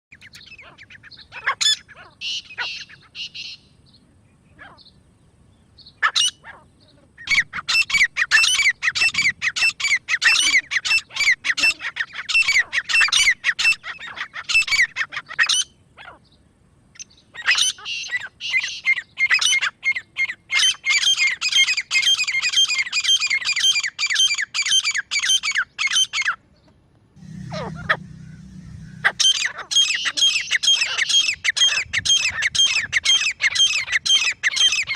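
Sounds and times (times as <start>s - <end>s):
francolin calling: 0.1s - 5.0s, 27.2s - 34.9s
brief low hum: 27.2s - 29.7s.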